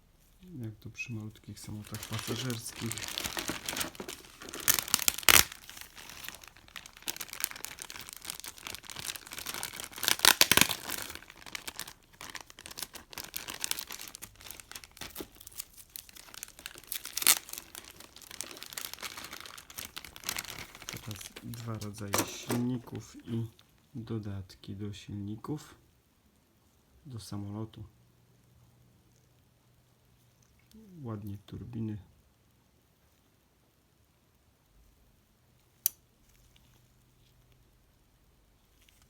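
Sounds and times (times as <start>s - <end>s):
plastic bag crinkling: 1.4s - 23.5s.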